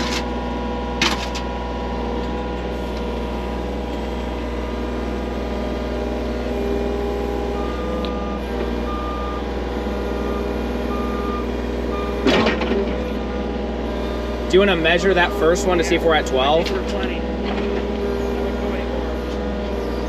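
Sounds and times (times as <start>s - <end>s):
skid loader engine running: 0.0s - 20.0s
reversing alarm beeps: 7.5s - 12.3s, 13.1s - 16.2s.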